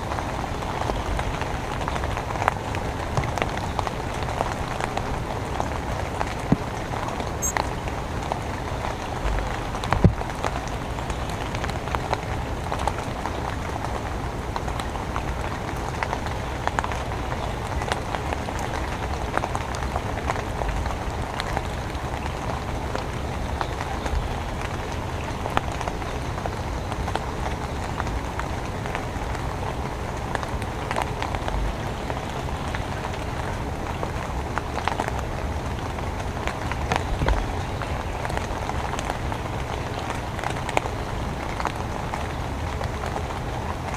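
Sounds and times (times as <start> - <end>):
raindrops ticking: 0.0 - 43.9
steady rain hiss: 0.0 - 43.9.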